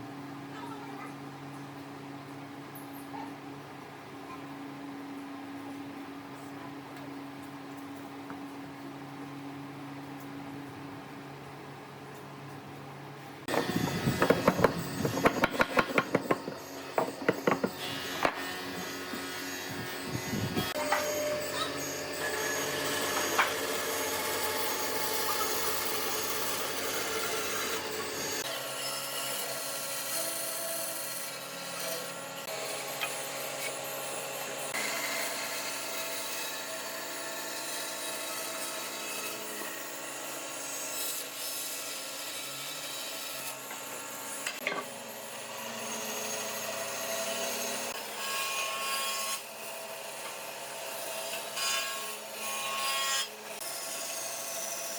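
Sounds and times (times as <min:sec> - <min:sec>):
tools scraping wood: 0:13.5 - 0:21.6.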